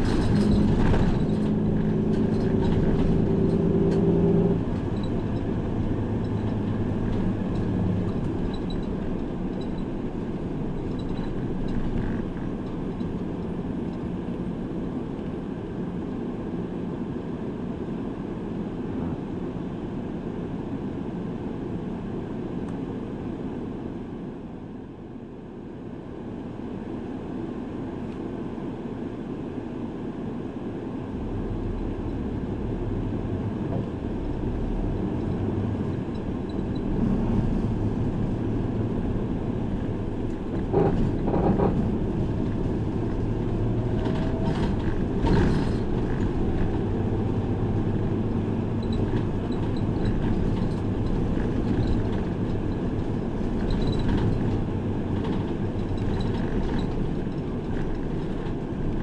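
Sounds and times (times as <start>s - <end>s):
clunks and rattles: 0.0s - 15.8s, 33.4s - 59.0s
bus engine and road rumble: 0.0s - 59.0s.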